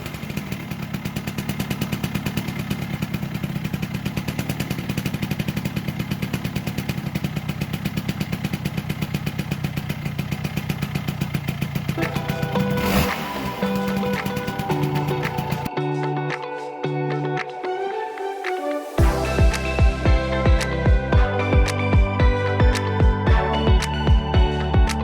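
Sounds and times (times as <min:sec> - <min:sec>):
two-stroke engine idling: 0:00.0 - 0:15.7, 0:19.0 - 0:25.0
music: 0:12.0 - 0:25.0.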